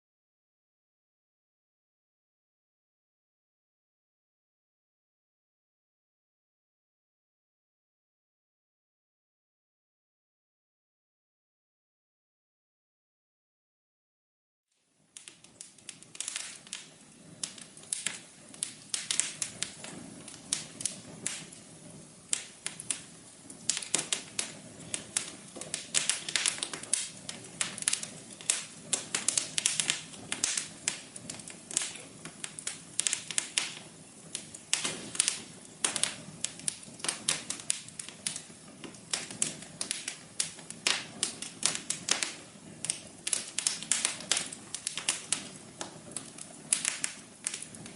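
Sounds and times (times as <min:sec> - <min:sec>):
wood fire crackling: 0:14.8 - 0:47.9.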